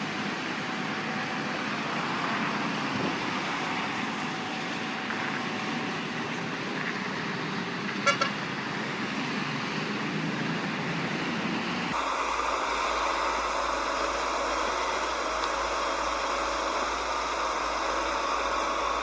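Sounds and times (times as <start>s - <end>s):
heavy traffic noise: 0.0s - 19.0s
steady engine noise: 0.0s - 19.0s
vehicle horn double honk: 8.0s - 8.4s.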